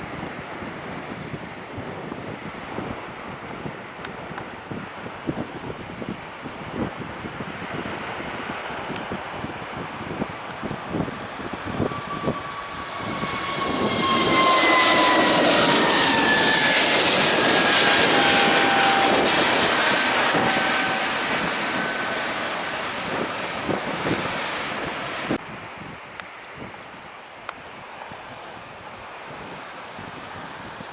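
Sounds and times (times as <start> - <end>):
jet airliner passing: 0.0 - 25.4
wind buffeting microphone: 0.0 - 30.9.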